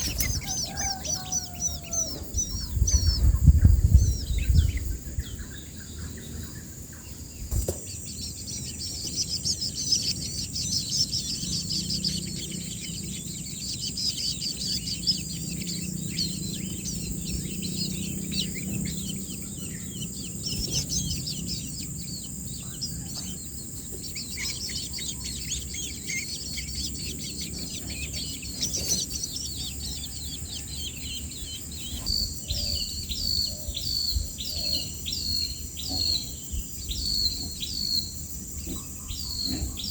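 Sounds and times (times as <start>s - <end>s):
high insect drone: 0.0s - 39.9s
nestlings chirping: 0.0s - 39.9s.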